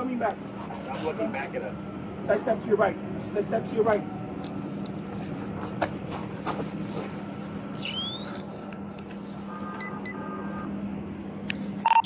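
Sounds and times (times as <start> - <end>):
idling vehicle engine hum: 0.0 - 12.0
thin whistle rising in pitch: 7.8 - 8.9
short electronic beeps: 9.6 - 10.2.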